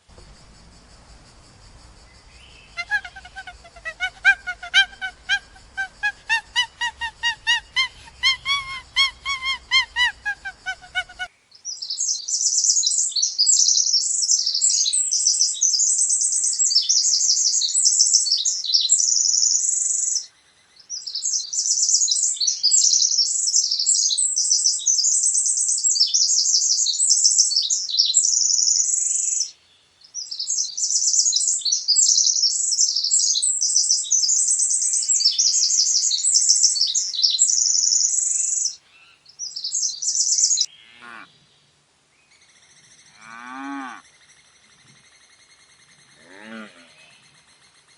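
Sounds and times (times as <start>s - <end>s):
high-pitched bird chirping: 2.4s - 11.3s, 30.9s - 38.8s
pitched animal calls: 2.6s - 11.3s.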